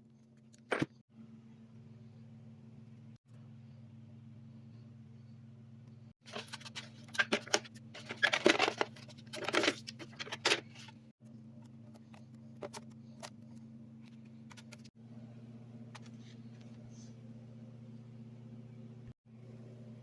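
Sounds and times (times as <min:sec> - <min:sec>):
steady low hum: 0:00.0 - 0:20.0
small parts and tools clattering: 0:06.3 - 0:11.0.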